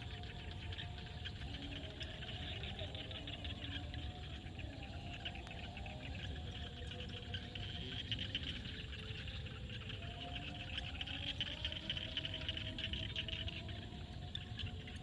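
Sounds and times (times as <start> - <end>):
frog calls: 0.0 - 15.0.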